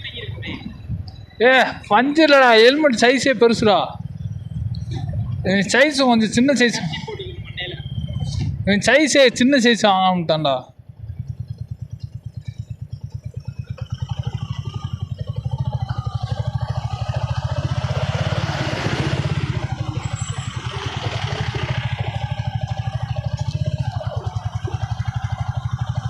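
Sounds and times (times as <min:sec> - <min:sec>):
motorcycle engine putter: 0:10.8 - 0:26.0.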